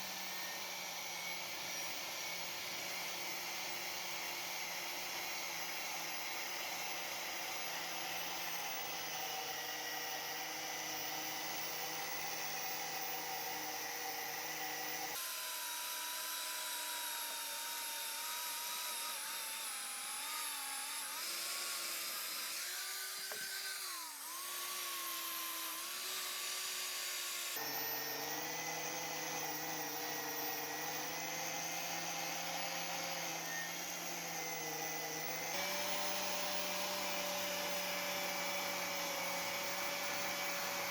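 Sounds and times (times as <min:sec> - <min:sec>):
power tool motor whine: 0:00.0 - 0:40.9.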